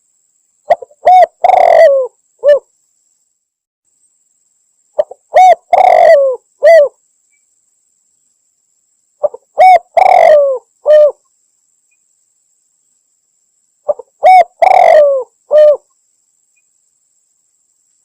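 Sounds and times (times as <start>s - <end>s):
dove cooing: 0.7s - 2.7s, 5.0s - 7.0s, 9.2s - 11.2s, 13.9s - 15.9s.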